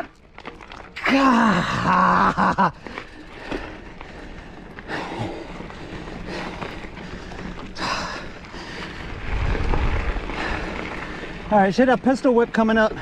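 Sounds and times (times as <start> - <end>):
bike rattles and clicks: 0.0 - 13.0
bike tyre rumble on dirt: 0.0 - 13.0
person breathing hard: 2.8 - 9.4.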